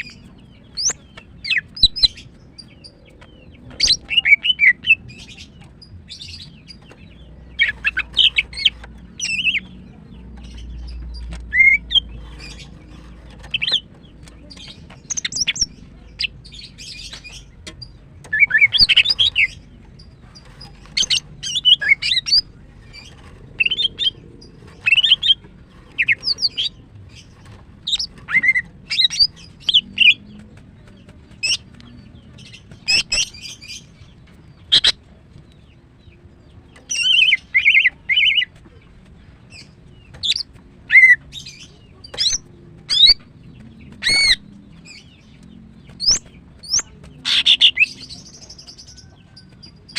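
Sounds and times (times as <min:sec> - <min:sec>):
bird chirping and trilling: 0:00.0 - 0:35.1, 0:39.5 - 0:49.9.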